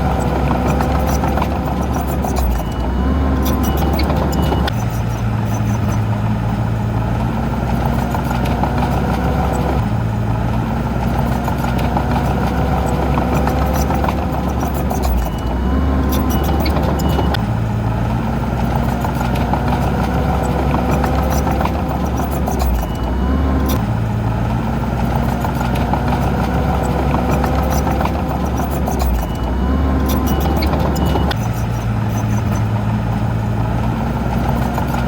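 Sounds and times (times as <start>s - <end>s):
heavy diesel machinery running: 0.0s - 35.0s
short clicks and clanks: 25.0s - 32.8s.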